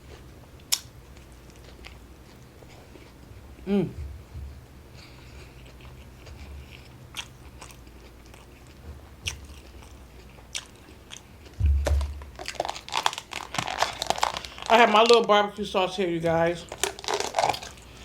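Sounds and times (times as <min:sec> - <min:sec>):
person chewing food: 0:00.0 - 0:04.3, 0:04.9 - 0:15.2, 0:16.7 - 0:18.0
low thump: 0:11.6 - 0:12.4.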